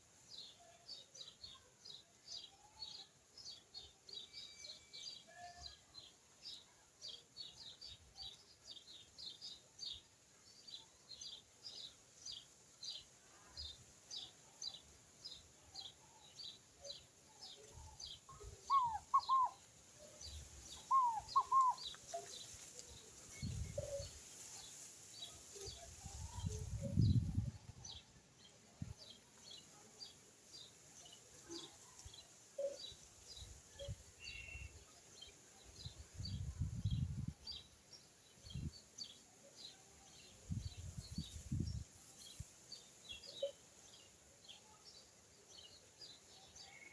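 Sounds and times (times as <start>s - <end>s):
lower curving bird calls: 18.3s - 19.6s, 20.7s - 22.4s.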